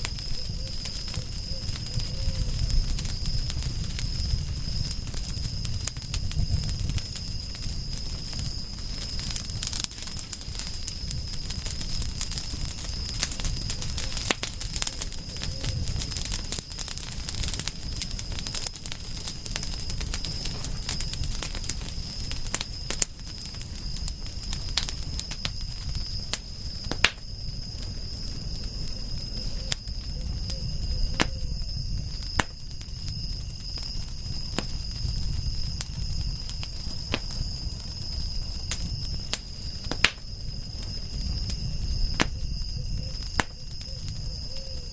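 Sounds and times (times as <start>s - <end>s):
campfire crackling and popping: 0.0s - 44.9s
insect trill: 0.0s - 44.9s
low rumble of flames: 0.0s - 44.9s.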